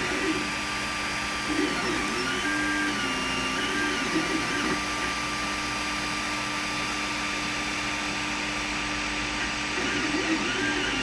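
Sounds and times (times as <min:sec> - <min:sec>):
stepper motors whining: 0:00.0 - 0:05.5, 0:09.2 - 0:11.0
cooling fans whirring: 0:00.0 - 0:11.0.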